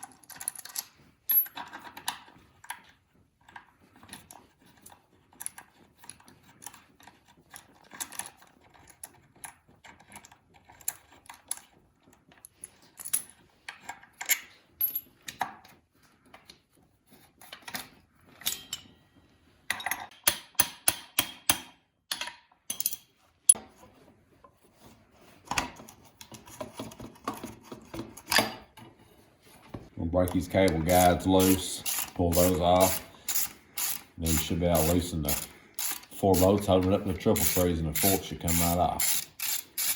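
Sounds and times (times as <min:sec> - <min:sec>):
metal tools clinking: 0:17.5 - 0:19.0, 0:22.7 - 0:23.6, 0:30.2 - 0:39.9.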